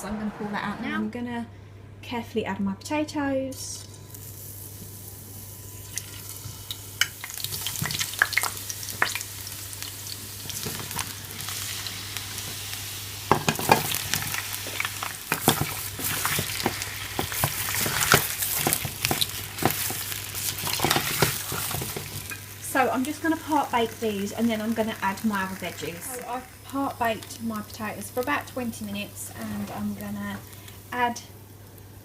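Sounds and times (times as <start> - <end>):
low hum: 0.0 - 2.2
potatoes sizzling in oil: 3.9 - 32.0.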